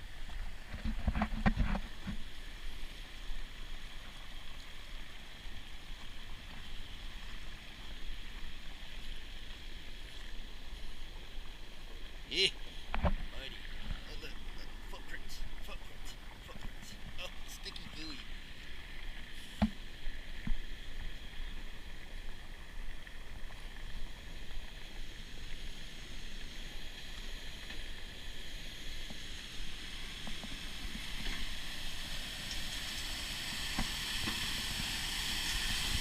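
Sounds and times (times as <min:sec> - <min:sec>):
floodwater rushing: 0:07.0 - 0:20.2.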